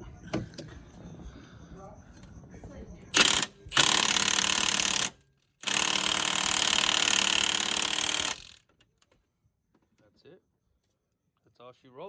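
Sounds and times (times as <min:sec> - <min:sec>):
impact wrench hammering: 0:03.2 - 0:08.6.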